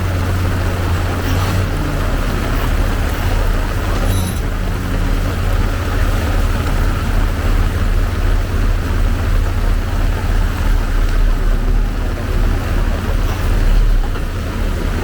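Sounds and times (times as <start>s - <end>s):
heavy rain hiss: 0.0s - 15.0s.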